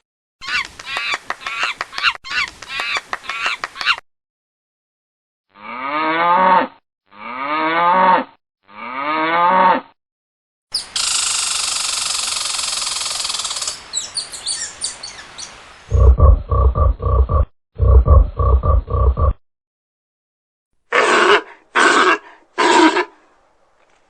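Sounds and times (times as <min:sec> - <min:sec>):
high-pitched hissing and chirps: 0:10.7 - 0:15.6.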